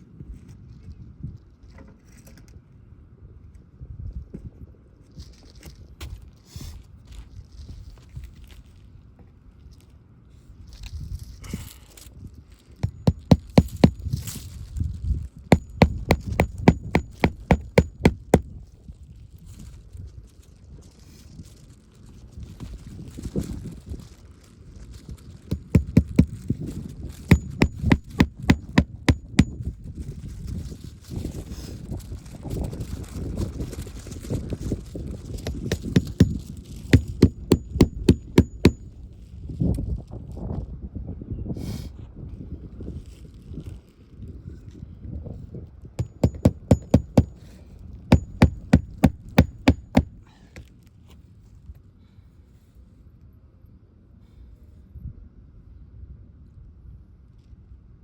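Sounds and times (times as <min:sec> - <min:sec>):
hammer striking metal: 0:12.8 - 0:14.0, 0:15.5 - 0:18.4, 0:25.5 - 0:26.3, 0:27.3 - 0:29.6, 0:35.5 - 0:36.4, 0:37.0 - 0:38.8, 0:46.0 - 0:47.3, 0:48.1 - 0:50.1.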